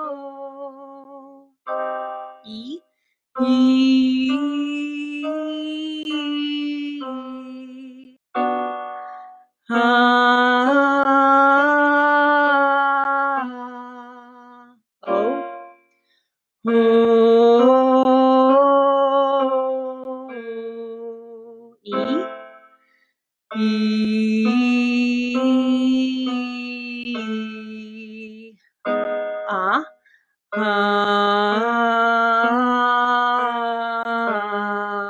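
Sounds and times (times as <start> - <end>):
woman singing vocal exercise: 0.0 - 1.5, 3.4 - 8.2, 9.7 - 15.4, 16.7 - 22.3, 23.6 - 28.5, 30.6 - 35.0
short piano chords: 3.4 - 9.4, 15.0 - 15.8, 16.7 - 22.8, 28.9 - 30.0.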